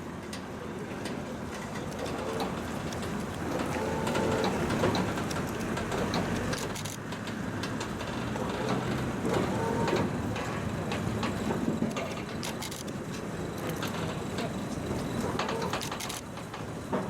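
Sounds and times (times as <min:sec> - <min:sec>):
clicks and rattles: 0:15.2 - 0:16.7.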